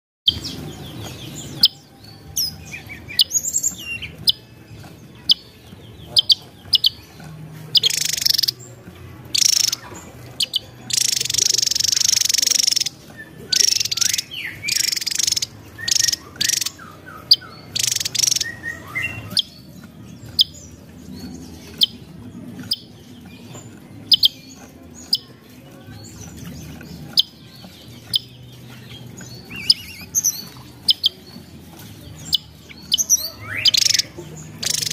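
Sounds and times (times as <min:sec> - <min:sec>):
bird calling: 0:00.3 - 0:08.7, 0:09.3 - 0:22.0, 0:32.0 - 0:34.9
bursts of rapid birdsong: 0:00.3 - 0:34.9.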